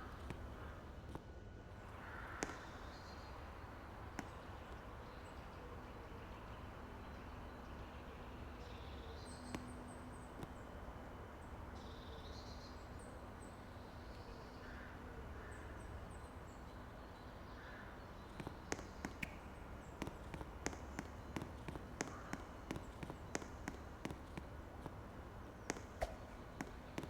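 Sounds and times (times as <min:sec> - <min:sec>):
outdoor background hum: 0:00.0 - 0:27.0
small birds chirping: 0:01.7 - 0:27.0
sharp irregular clicks and taps: 0:18.3 - 0:25.0, 0:25.7 - 0:27.0.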